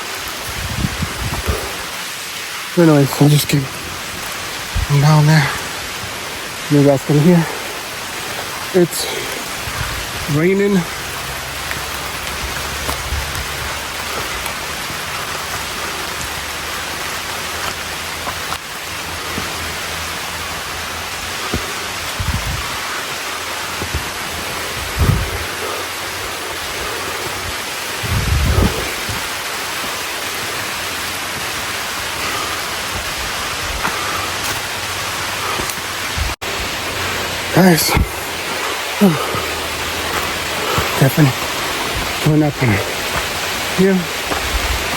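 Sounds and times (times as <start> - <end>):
rain falling: 0.0 - 44.9
short low thumps: 21.2 - 23.0, 23.7 - 25.5.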